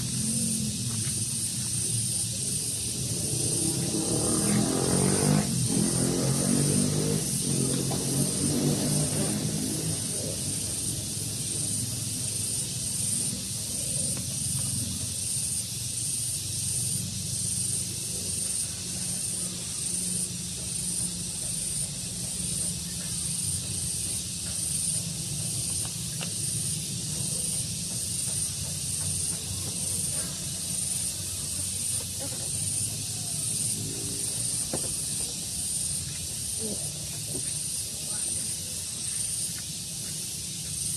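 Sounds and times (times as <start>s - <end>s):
pulsing high hiss: 0.0s - 40.9s.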